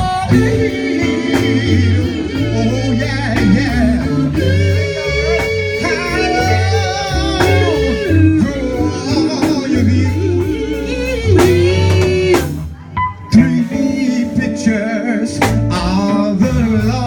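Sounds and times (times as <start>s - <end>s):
person singing long notes: 0.0s - 12.6s
guitar: 0.0s - 17.0s
low bass notes: 0.0s - 17.0s.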